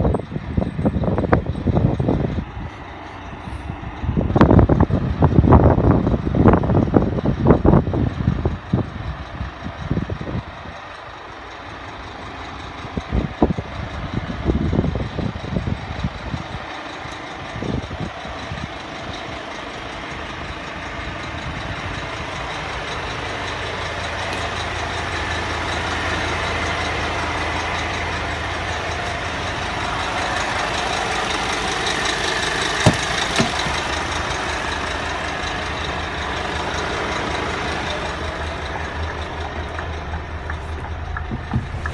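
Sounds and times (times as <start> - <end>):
diesel engine idling: 0.0 - 41.9
low bumps on the microphone: 41.2 - 41.9.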